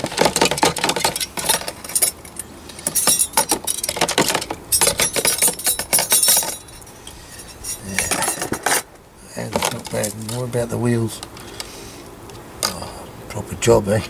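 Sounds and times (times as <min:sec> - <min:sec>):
metal toy parts clinking: 0:00.0 - 0:08.9.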